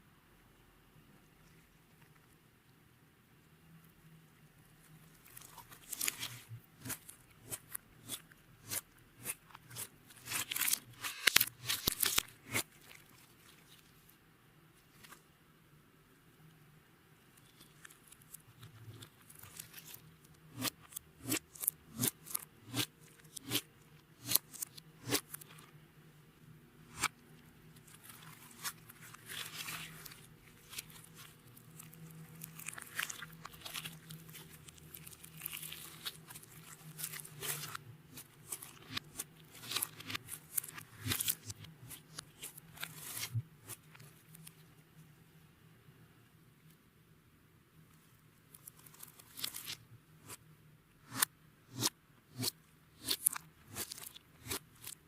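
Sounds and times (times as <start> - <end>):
slime popping and crackling: 5.4 - 13.0, 27.9 - 43.8.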